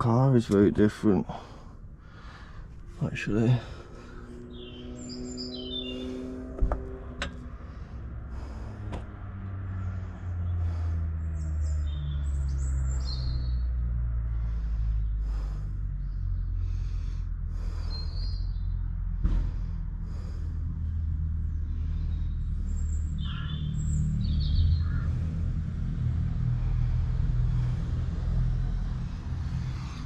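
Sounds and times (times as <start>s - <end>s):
birds chirping: 0.0s - 19.1s, 20.1s - 25.5s
low engine rumble: 0.0s - 30.0s
sharp knocks: 6.6s - 7.5s.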